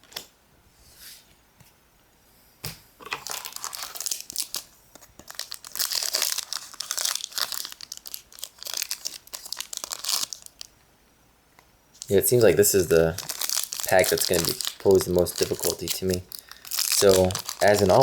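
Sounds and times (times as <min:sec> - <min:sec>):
foil wrapper crinkling: 0:03.1 - 0:10.8, 0:12.0 - 0:18.0.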